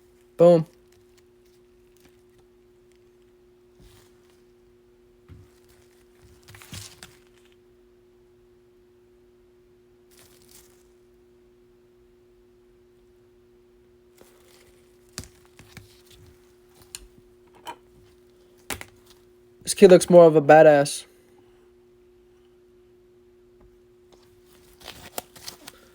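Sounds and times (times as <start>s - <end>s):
low electrical hum: 0.0s - 25.9s
cards rustling and clicking: 5.5s - 7.5s, 14.2s - 17.2s, 24.2s - 25.9s.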